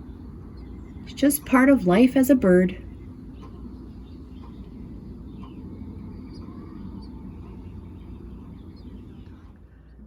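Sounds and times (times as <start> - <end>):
low background rumble: 0.0 - 10.0
faint bird chirps: 2.8 - 10.0.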